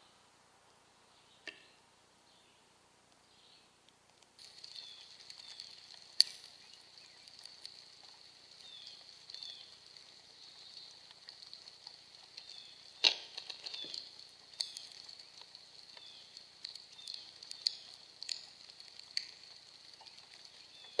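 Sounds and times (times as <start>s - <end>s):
steady high-pitched hiss: 0.0s - 21.0s
falling bird chirps: 4.4s - 21.0s.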